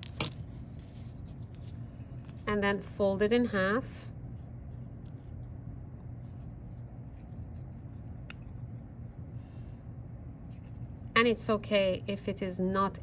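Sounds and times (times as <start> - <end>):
paper rustling and folding: 0.0 - 2.5
steady low hum: 0.0 - 13.0.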